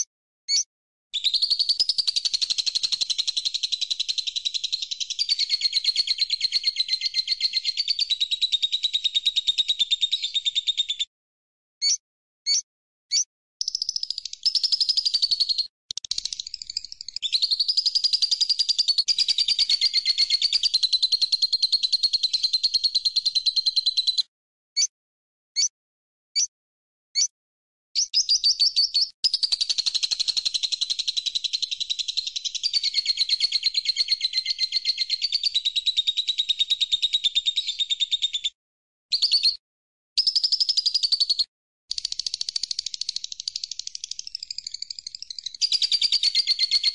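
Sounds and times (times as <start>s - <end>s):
bird chirps: 0.0s - 11.1s, 11.8s - 24.9s, 28.0s - 39.6s, 40.2s - 46.9s
songbird trilling: 28.0s - 38.4s.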